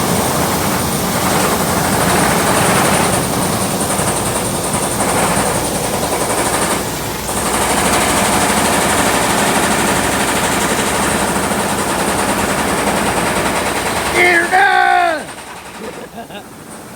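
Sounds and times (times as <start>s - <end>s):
welding arc crackling and sputtering: 0.1s - 16.4s.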